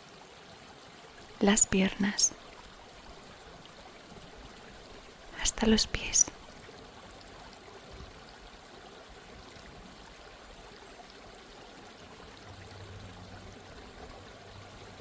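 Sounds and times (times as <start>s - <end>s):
stream water flowing: 0.0s - 15.0s.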